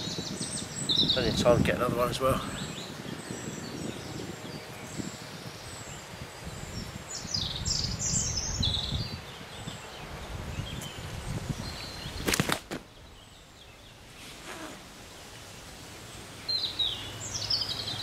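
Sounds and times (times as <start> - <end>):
wind rumble on microphone: 0.0 - 13.8
songbird chirping: 0.0 - 18.0.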